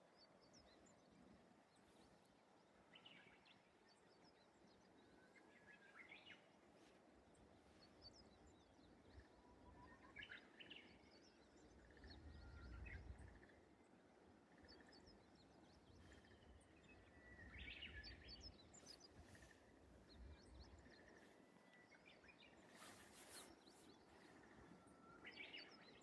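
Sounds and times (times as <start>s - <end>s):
bush warbler singing: 14.5s - 26.0s
small birds chirping: 14.5s - 26.0s.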